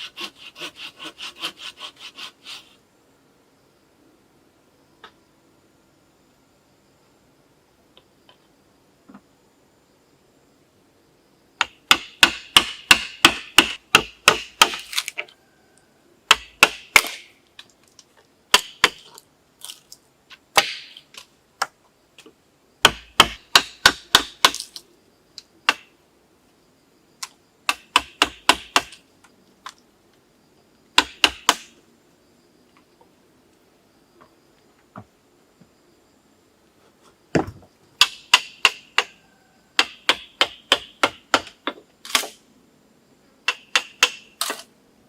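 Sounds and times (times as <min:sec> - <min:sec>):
blade chopping on wood: 0:11.6 - 0:15.0, 0:16.3 - 0:17.3, 0:22.9 - 0:24.7.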